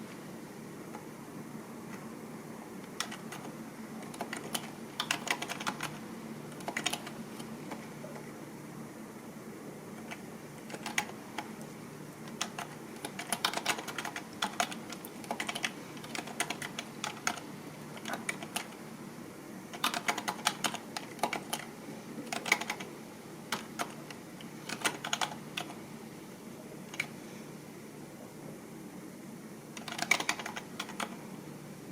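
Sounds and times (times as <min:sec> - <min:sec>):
low steady hum: 0:00.0 - 0:31.9
computer keyboard typing: 0:02.8 - 0:08.2, 0:09.9 - 0:18.8, 0:19.7 - 0:25.8, 0:26.9 - 0:27.2, 0:29.8 - 0:31.2.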